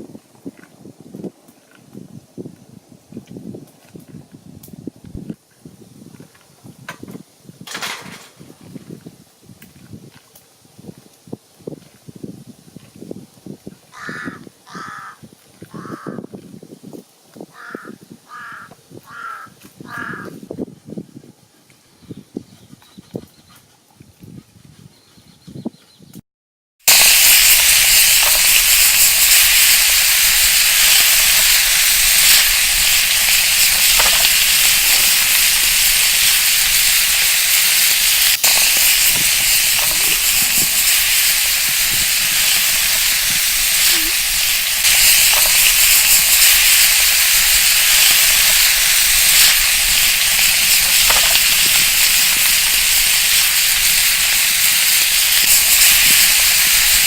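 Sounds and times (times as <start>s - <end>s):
kidneys sizzling on hot plate: 7.3s - 8.5s, 26.9s - 57.0s
small pops: 26.9s - 57.0s.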